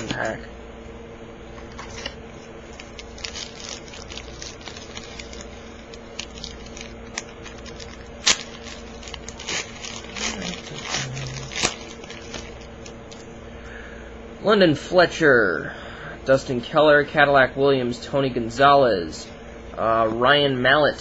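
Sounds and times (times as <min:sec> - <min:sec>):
low hum: 0:00.0 - 0:14.4
cards being handled: 0:01.6 - 0:13.3
foil wrapper crinkling and tearing: 0:01.7 - 0:13.2.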